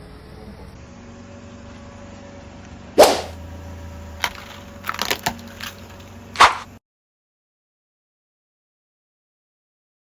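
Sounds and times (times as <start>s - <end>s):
low engine hum: 0.0s - 6.8s
tyre crushing something brittle: 4.1s - 6.8s.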